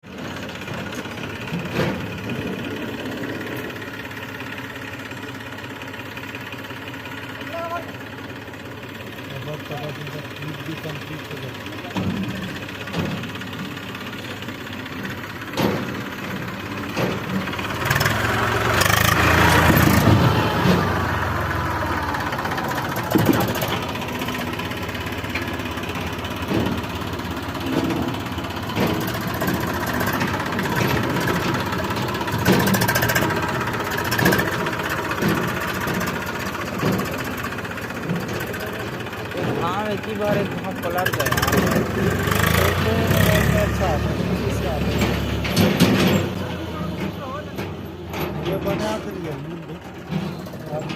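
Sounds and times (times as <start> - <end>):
diesel engine running and revving: 0.0 - 50.9
sharp clunks and knocks: 0.6 - 2.8, 11.9 - 13.9, 15.0 - 18.2, 22.7 - 38.6, 44.2 - 50.9.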